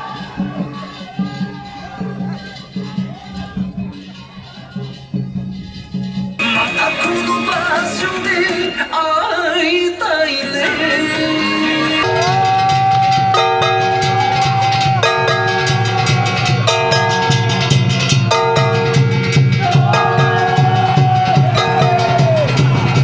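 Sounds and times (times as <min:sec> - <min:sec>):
dance music over loudspeakers: 0:06.4 - 0:17.0
steady drum beat: 0:12.0 - 0:23.0.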